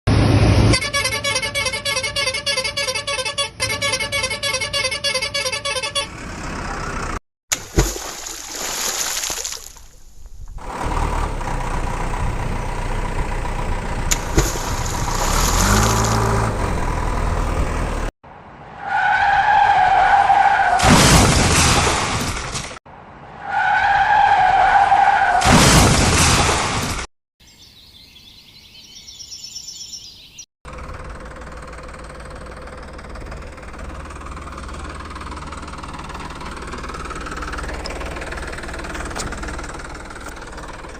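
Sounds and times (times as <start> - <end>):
long horn honks: 0.6 - 6.2
tyres skidding: 10.3 - 27.1, 30.7 - 40.9.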